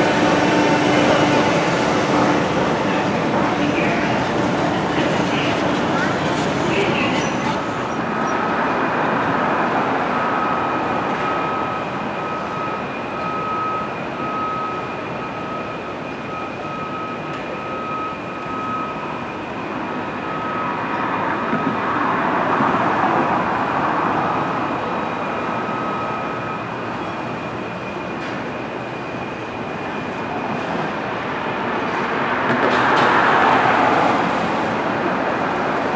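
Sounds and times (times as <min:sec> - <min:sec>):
train rumbling on track: 0:00.0 - 0:35.9.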